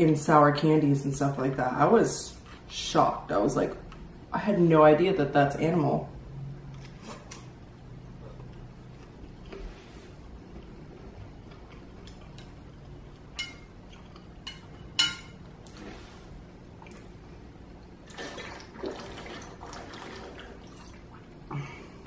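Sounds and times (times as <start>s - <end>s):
chewing: 10.5s - 14.4s.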